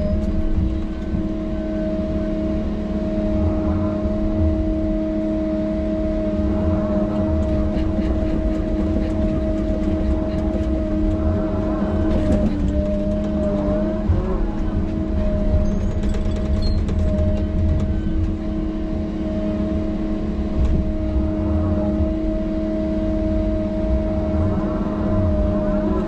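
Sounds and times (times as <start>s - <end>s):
diesel engine under load: 0.0s - 26.0s
steady whine: 0.0s - 26.0s
metal clanks and rattles: 7.3s - 18.5s.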